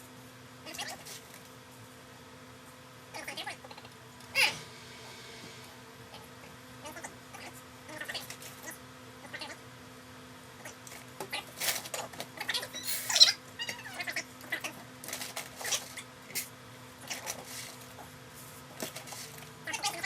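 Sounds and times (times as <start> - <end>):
brief high wavering sound: 4.1 - 6.8.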